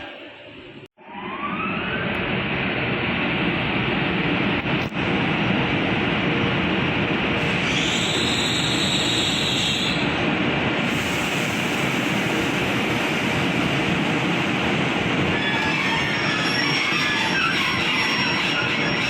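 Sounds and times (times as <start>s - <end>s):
train wheels rumbling on track: 2.2s - 19.0s
faint high wheel squeals: 15.4s - 19.0s.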